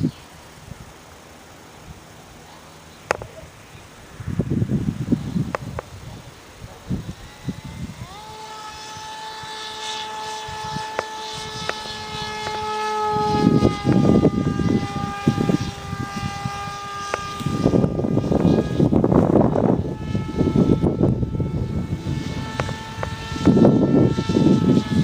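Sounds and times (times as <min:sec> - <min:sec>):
propeller motor whine: 0:00.0 - 0:25.0.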